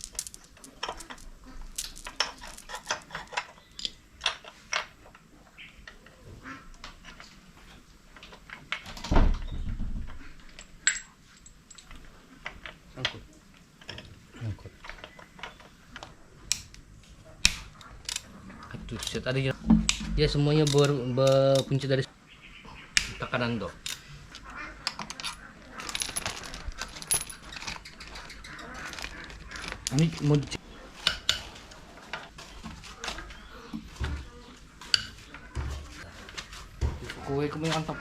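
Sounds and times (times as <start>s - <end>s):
metal tools clinking: 0.0s - 4.5s, 24.9s - 27.9s.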